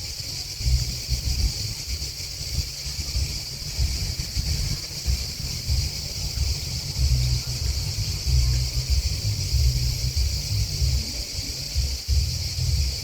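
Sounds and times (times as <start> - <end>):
grasshoppers and crickets chirping: 0.0 - 13.0
wind buffeting microphone: 0.0 - 13.0.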